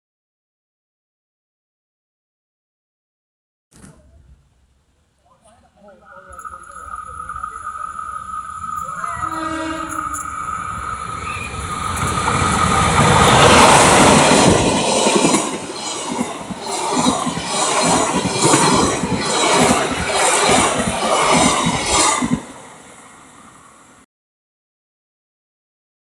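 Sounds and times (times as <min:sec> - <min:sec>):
train passing: 0:05.4 - 0:24.0
wheels clacking over rail joints: 0:06.3 - 0:23.3.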